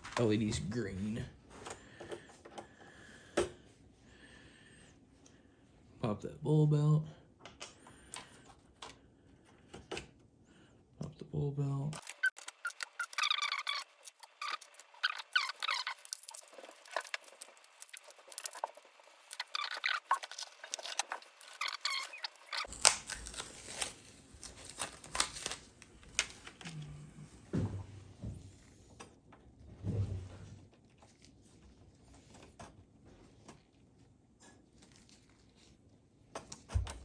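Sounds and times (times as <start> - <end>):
short squeaks: 12.0 - 22.7.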